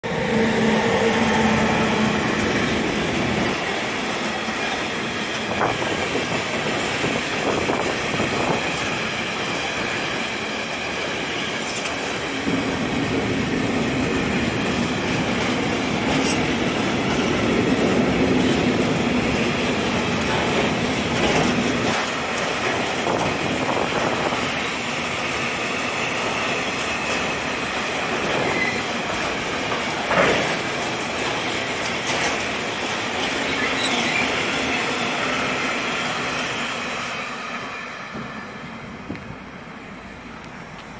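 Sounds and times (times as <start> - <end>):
steel wheels rumbling on rail: 0.0 - 40.9
faint high wheel squeal: 28.4 - 29.0, 33.4 - 35.4.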